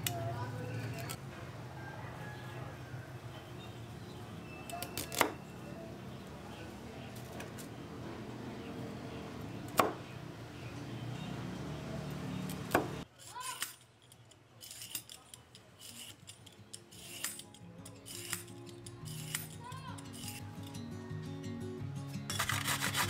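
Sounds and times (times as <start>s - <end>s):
peeler scraping carrot: 15.8s - 20.8s, 22.3s - 23.0s.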